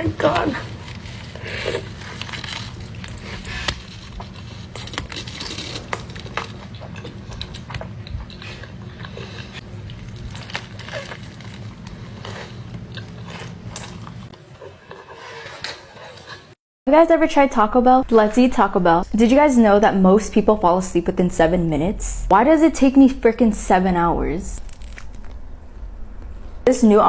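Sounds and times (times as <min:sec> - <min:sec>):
person chewing food: 0:00.6 - 0:16.6.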